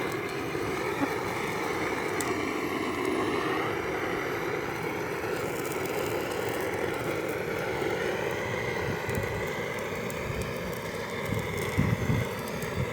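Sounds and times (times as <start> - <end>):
flame roaring: 0.0 - 12.9.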